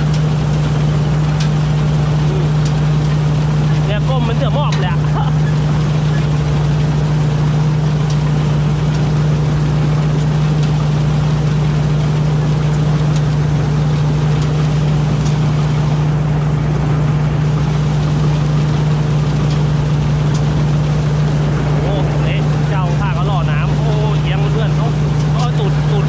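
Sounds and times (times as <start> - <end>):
combine harvester engine droning: 0.0 - 26.0.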